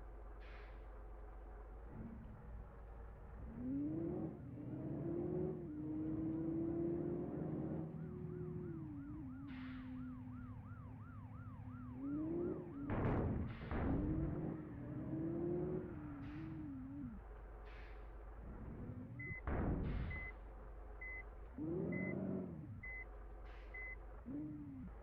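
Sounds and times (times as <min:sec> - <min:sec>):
vehicle motor whine: 0:03.2 - 0:25.0
warbling siren-like tone: 0:04.8 - 0:17.2.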